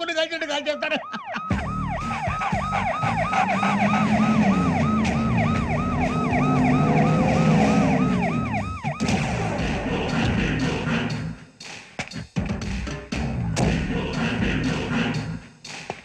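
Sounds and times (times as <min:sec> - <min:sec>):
vehicle siren sweeping: 0:00.4 - 0:10.2.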